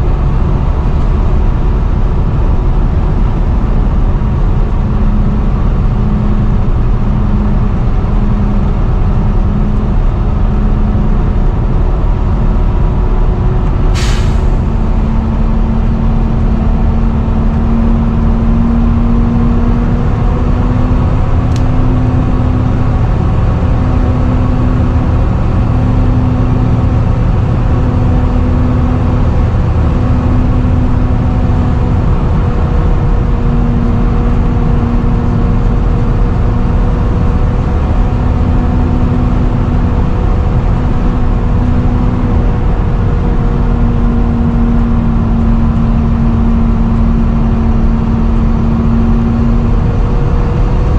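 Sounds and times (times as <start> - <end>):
bus engine whining drone: 0.0 - 50.9
air brake hiss: 13.9 - 15.0.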